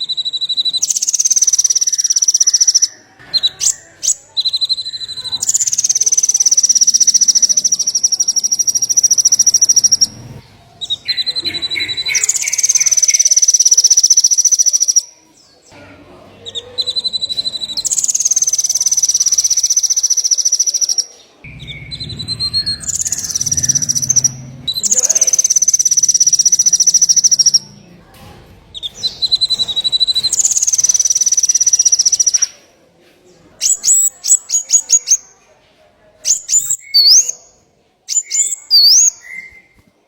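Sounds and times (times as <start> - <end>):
songbird trilling song: 0.0 - 15.7, 16.4 - 27.9, 28.7 - 32.6, 33.6 - 35.4, 36.2 - 39.8
bird sharp chips: 28.8 - 32.6.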